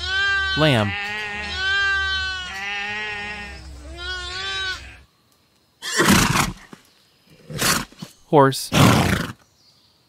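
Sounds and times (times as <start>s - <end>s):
lamb bleating: 0.0s - 5.0s.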